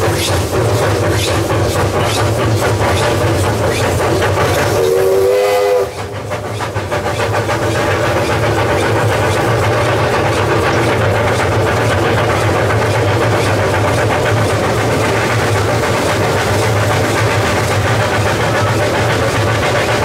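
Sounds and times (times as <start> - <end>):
locomotive running with pulsing beat: 0.0 - 20.0
locomotive whistle toot: 4.7 - 6.1.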